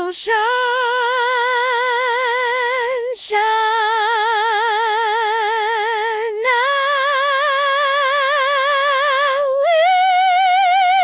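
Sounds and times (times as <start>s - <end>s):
synthetic singing voice: 0.0s - 11.0s.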